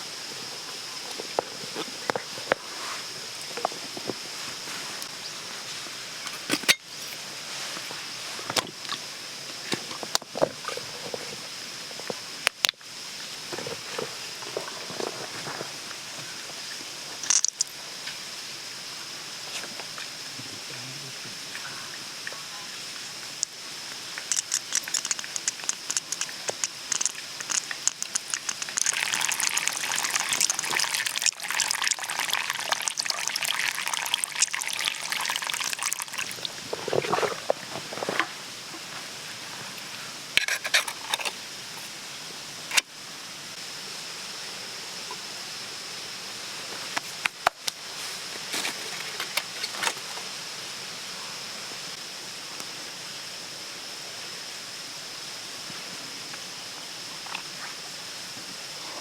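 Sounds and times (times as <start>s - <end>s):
steady high hiss: 0.0s - 59.0s
clicks and crackles: 17.2s - 17.7s, 23.4s - 31.4s, 40.4s - 41.4s
liquid pouring and splashing: 24.2s - 37.6s.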